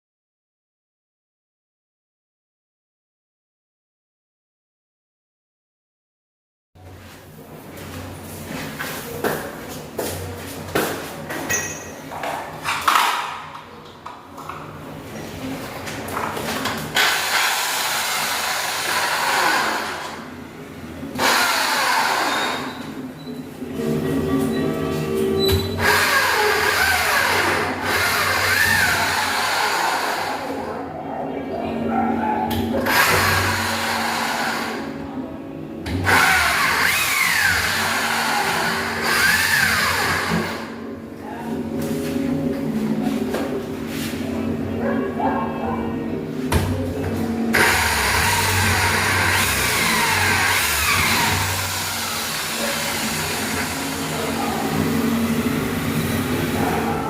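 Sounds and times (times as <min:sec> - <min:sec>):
power tool motor running: 0:17.0 - 0:20.3, 0:21.2 - 0:22.9, 0:25.8 - 0:30.6, 0:32.8 - 0:34.9, 0:35.9 - 0:40.8, 0:47.5 - 0:56.6.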